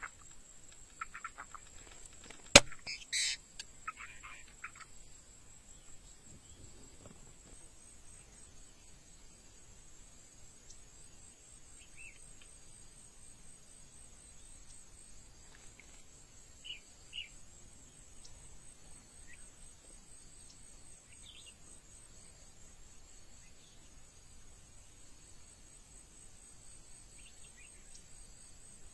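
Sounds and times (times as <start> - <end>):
insects chirring: 0.0 - 28.9
bird chirps: 2.5 - 4.9.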